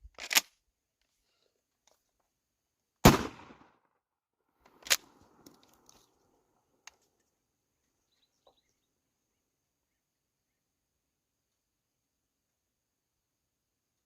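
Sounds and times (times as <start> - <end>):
shotgun shot: 3.0 - 3.7.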